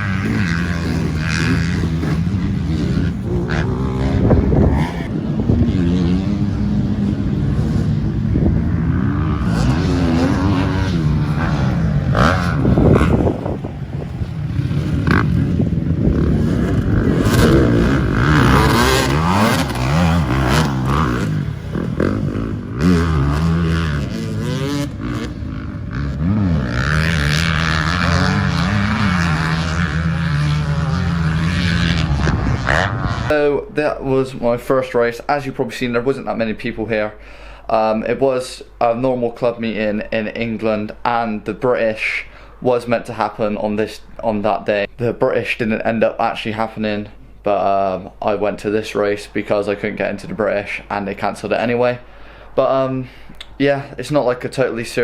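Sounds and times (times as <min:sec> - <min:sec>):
motocross bike engine racing: 0:00.0 - 0:36.4.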